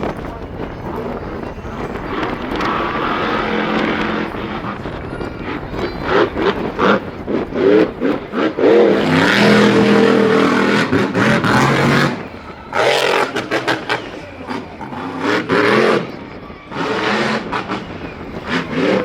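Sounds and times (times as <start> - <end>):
racing engine revving: 1.8 - 19.0.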